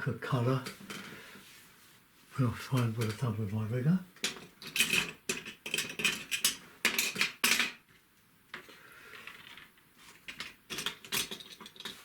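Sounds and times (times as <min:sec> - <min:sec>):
paintbrushes clattering: 0:08.6 - 0:12.0
rustling: 0:08.6 - 0:12.0.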